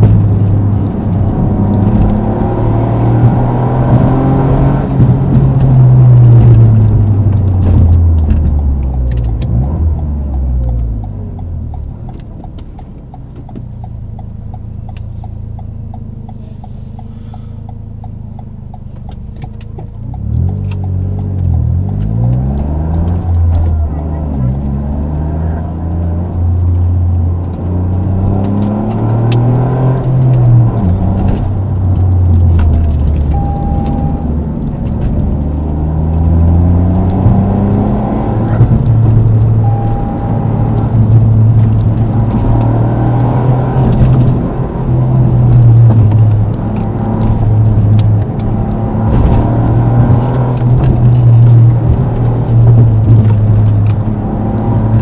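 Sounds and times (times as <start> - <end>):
car engine accelerating: 0.0 - 55.0
short electronic beeps: 33.3 - 34.3, 39.6 - 40.9.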